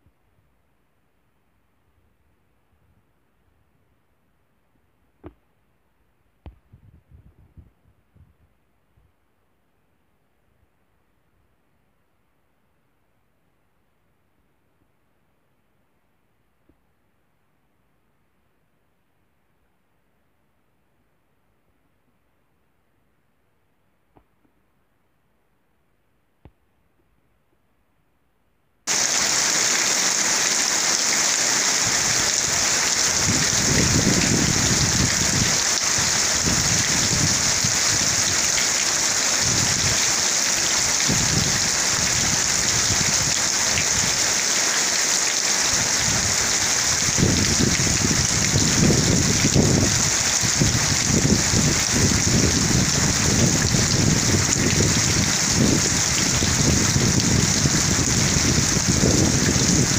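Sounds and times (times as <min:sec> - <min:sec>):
heavy rain pouring: 0:28.9 - 0:59.9
thunder rumbling: 0:31.6 - 0:38.5.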